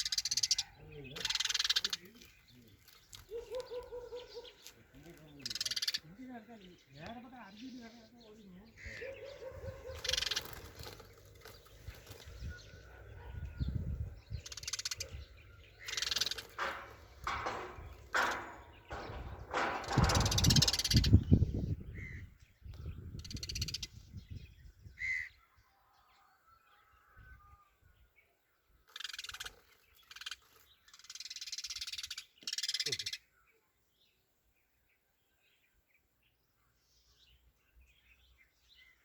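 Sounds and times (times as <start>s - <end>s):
bird harsh raspy calls: 0.0s - 24.2s, 24.9s - 25.6s, 28.8s - 33.5s.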